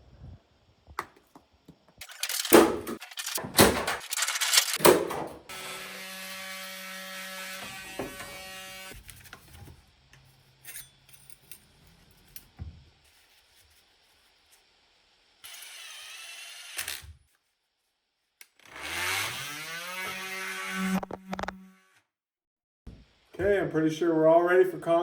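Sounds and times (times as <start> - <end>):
small electric motor running: 5.5 - 9.1, 15.4 - 17.2, 18.5 - 22.0.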